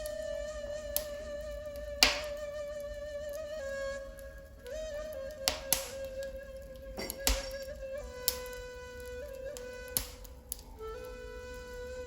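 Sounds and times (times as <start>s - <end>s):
wood fire crackle: 0.0s - 12.0s
breathy flute note: 6.9s - 12.0s.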